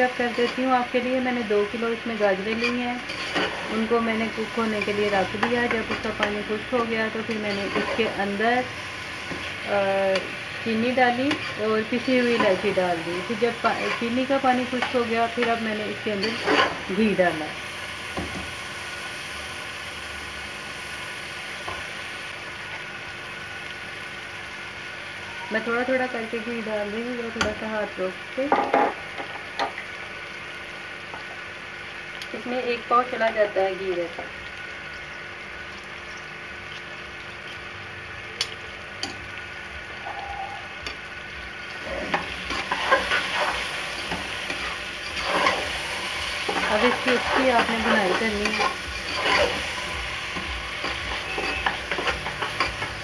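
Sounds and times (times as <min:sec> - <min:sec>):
carrots sizzling in a pot: 0:00.0 - 0:53.0
metal spatula scraping: 0:00.1 - 0:00.7, 0:02.4 - 0:06.5, 0:07.1 - 0:08.2, 0:11.2 - 0:17.0, 0:41.8 - 0:53.0.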